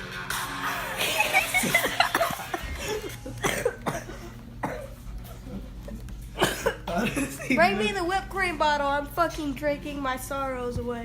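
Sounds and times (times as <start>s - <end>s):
person laughing: 0.9s - 3.8s
person coughing: 2.0s - 5.0s, 6.4s - 7.5s.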